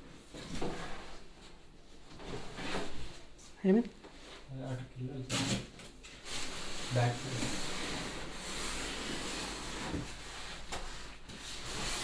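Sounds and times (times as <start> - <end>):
packaging rubbing and scraping: 6.2 - 12.0.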